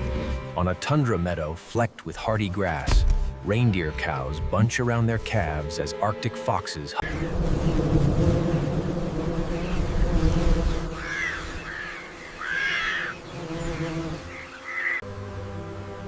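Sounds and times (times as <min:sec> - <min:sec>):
bee swarm buzzing: 0:05.4 - 0:16.0.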